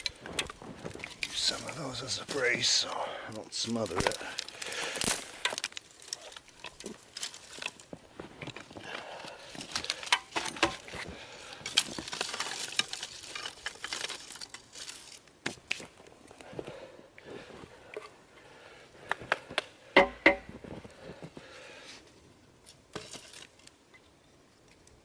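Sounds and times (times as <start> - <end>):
kindling cracking: 0.0 - 16.5
sticks snapping on campfire: 3.3 - 16.1.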